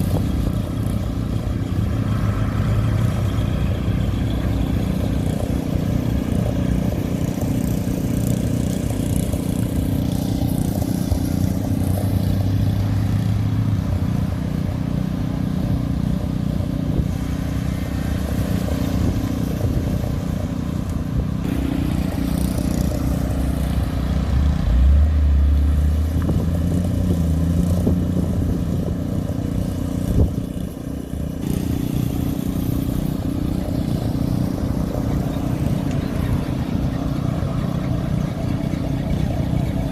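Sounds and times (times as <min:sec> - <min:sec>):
car engines rumbling past: 0:00.0 - 0:39.9.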